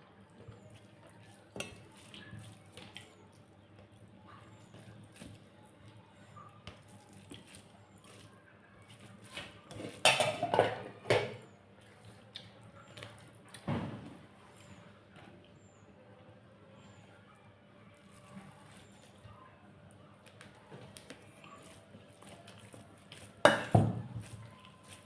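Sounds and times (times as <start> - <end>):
chewing: 0.5 - 6.0, 19.9 - 25.0.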